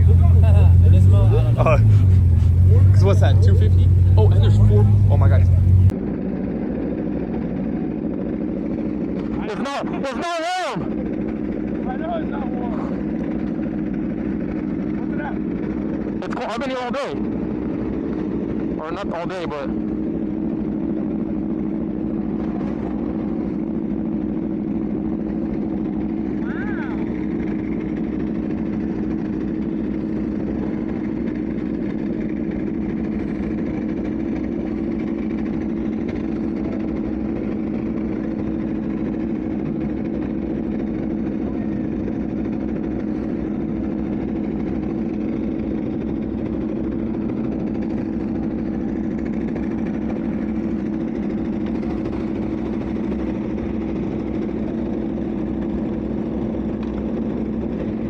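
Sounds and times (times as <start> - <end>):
motorcycle engine idling: 0.0 - 5.9, 19.6 - 58.0.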